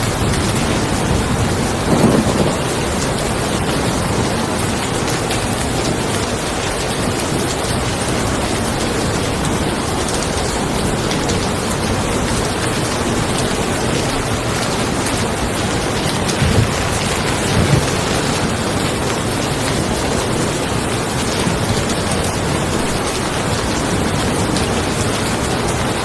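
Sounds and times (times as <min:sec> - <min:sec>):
rain falling on a car: 0:00.0 - 0:26.0
low thumps: 0:15.9 - 0:18.9.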